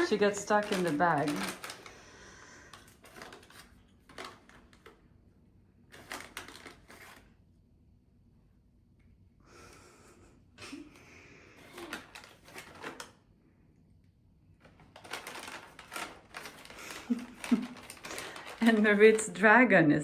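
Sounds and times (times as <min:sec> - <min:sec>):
bag rustling and crinkling: 0:00.0 - 0:05.0, 0:05.9 - 0:07.3, 0:11.6 - 0:13.2, 0:14.6 - 0:19.5.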